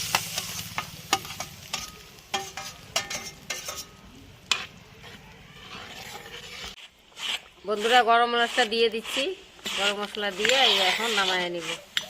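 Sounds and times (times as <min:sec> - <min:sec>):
gravy simmering and sizzling: 0:00.0 - 0:12.0
spatula clinking against pan: 0:01.1 - 0:04.7.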